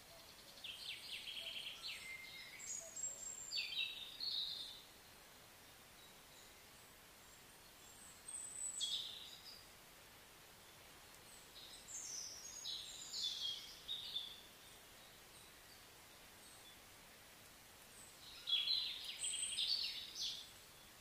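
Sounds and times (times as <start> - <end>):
faint steady hiss: 0.0 - 21.0
birds chirping: 10.6 - 16.9, 17.8 - 21.0.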